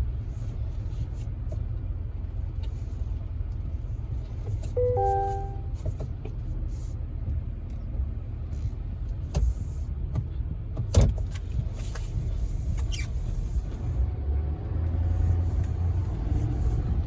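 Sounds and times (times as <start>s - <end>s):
motor vehicle rumble: 0.0s - 17.0s
chime: 4.8s - 5.7s.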